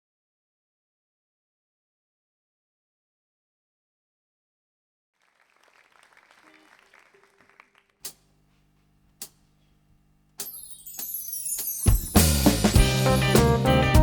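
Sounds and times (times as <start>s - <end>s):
faint audience applause: 5.2s - 8.1s
band playing: 11.8s - 14.0s.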